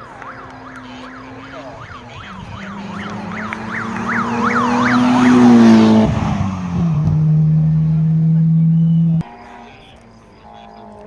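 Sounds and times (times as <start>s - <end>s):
siren yelping: 0.0s - 7.8s
vehicle engine passing: 0.0s - 9.7s.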